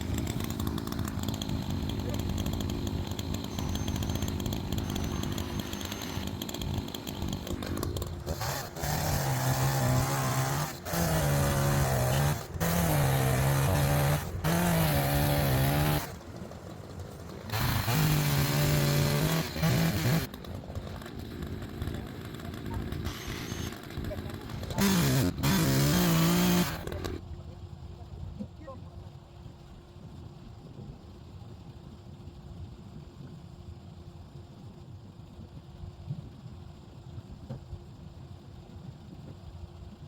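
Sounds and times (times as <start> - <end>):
chainsaw cutting log: 0.0 - 27.2
chainsaw idling: 0.0 - 27.2.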